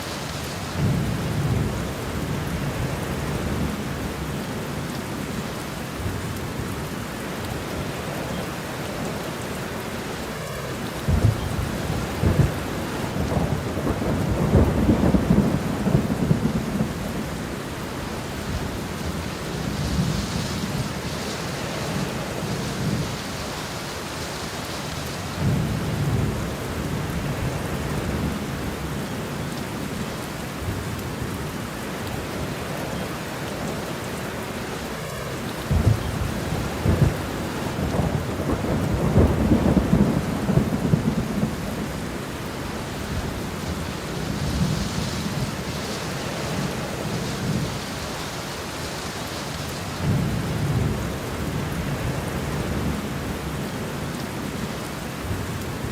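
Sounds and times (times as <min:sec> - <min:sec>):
steady rain falling: 0:00.0 - 0:55.9
thunder rumbling: 0:00.1 - 0:04.4, 0:10.4 - 0:23.6, 0:34.4 - 0:48.1.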